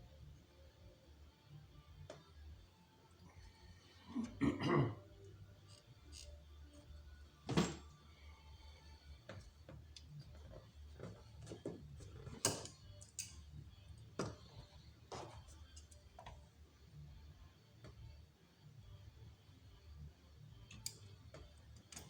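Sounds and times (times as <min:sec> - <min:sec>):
hand tools clicking and knocking: 0:10.3 - 0:13.4.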